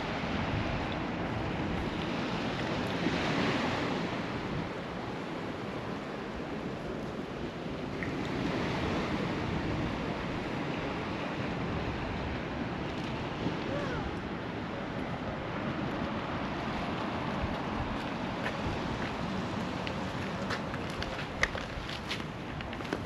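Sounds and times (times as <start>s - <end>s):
sea waves washing onto beach: 0.0s - 23.0s
wind rumble on microphone: 0.0s - 23.0s.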